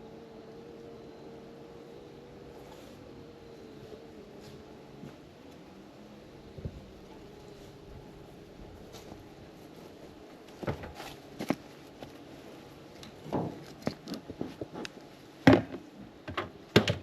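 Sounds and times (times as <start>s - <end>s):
wooden boxes knocking and scraping: 13.3s - 17.0s.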